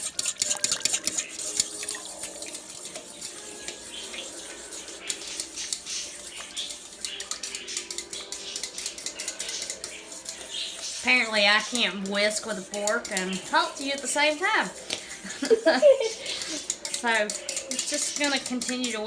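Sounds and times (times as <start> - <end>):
fork whisking in a bowl: 0.0 - 19.0.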